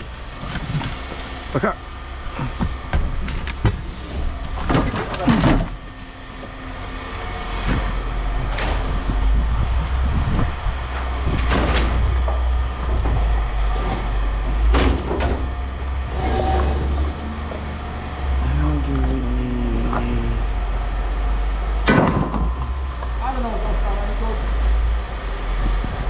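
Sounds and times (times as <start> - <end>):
vehicle engine rumbling: 0.0 - 26.0
metal clanks and knocks: 10.9 - 17.1, 21.8 - 23.2.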